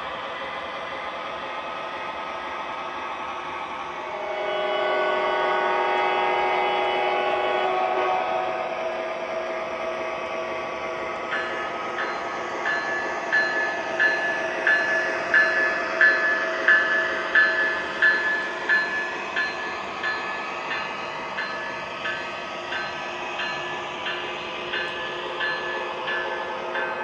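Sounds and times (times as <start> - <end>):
locomotive bell ringing: 11.2 - 27.0.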